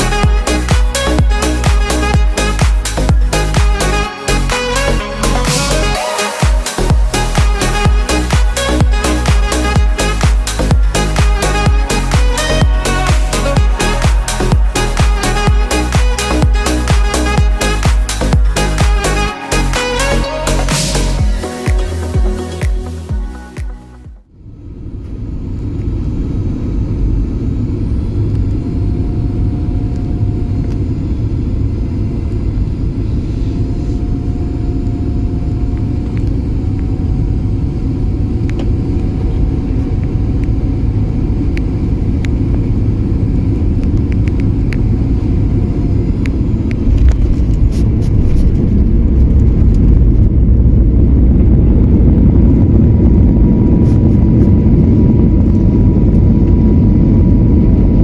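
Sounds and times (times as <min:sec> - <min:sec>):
engine tone rising: 0:00.0 - 0:23.5
airplane cabin engine rumble: 0:24.4 - 0:58.0.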